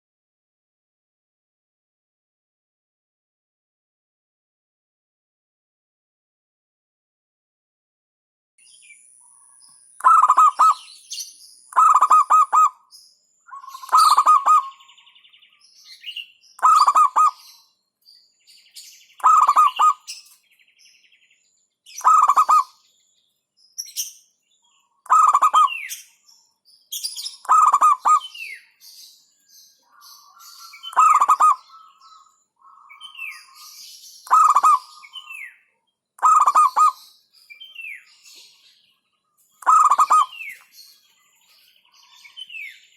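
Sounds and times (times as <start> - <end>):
birds chirping and trilling: 8.6 - 42.9
dove cooing: 10.0 - 10.8, 11.8 - 12.8, 13.6 - 14.8, 16.6 - 17.4, 19.2 - 20.1, 22.0 - 22.7, 25.1 - 25.8, 27.5 - 28.3, 30.7 - 32.0, 34.3 - 35.3, 36.2 - 37.0, 39.6 - 40.5.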